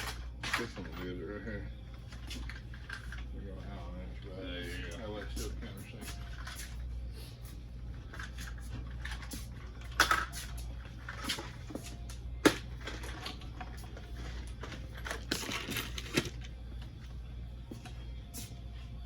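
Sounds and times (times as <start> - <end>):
steady low hum: 0.0 - 19.0
hand tools and metal parts clinking: 8.1 - 16.6.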